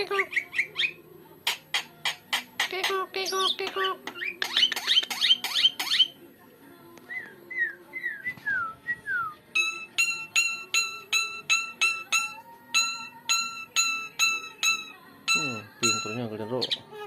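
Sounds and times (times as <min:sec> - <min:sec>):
clipped ringing notes: 0:09.6 - 0:16.5.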